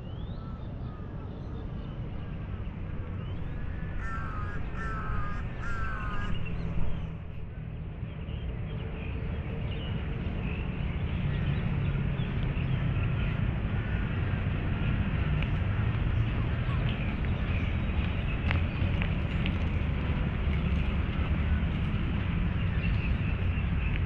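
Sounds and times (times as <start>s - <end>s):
crow cawing: 3.7s - 6.5s.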